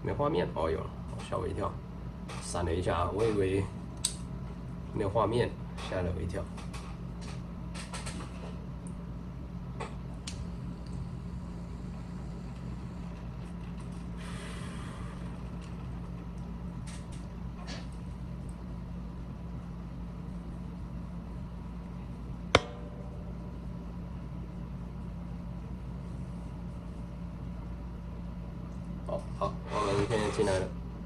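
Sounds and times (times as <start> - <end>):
low electrical hum: 0.0 - 31.0
sharp click: 4.0 - 4.3.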